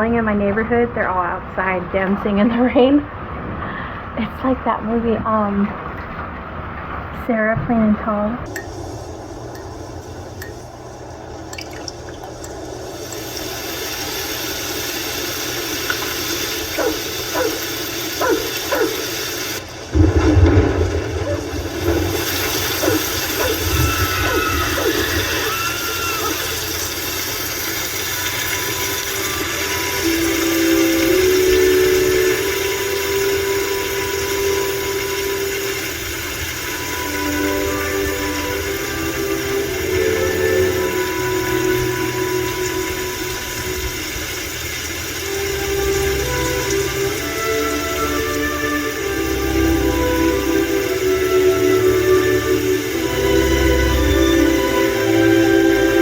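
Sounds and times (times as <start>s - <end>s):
steady rain falling: 0.0s - 56.0s
faint falling calls: 16.5s - 27.2s
long held tone: 23.1s - 44.3s, 45.3s - 56.0s.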